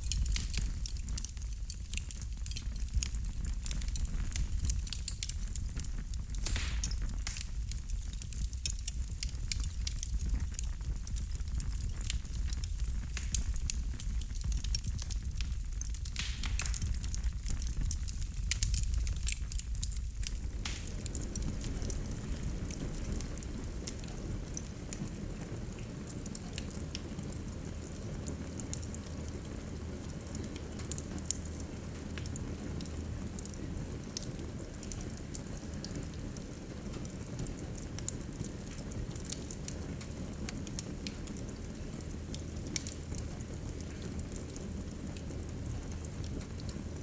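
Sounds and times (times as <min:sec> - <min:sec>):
fire crackling and popping: 0:00.0 - 0:47.0
rush of flame: 0:09.8 - 0:47.0.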